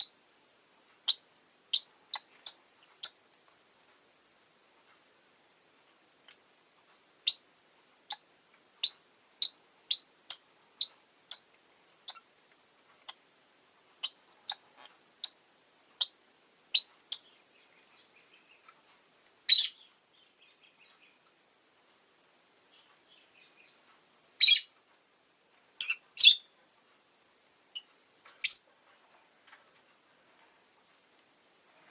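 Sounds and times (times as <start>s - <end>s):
lovebirds chirping: 1.0s - 3.2s, 7.2s - 12.3s, 14.0s - 15.4s, 16.0s - 18.8s, 19.4s - 21.4s, 22.6s - 24.8s, 25.8s - 26.6s, 27.7s - 28.7s.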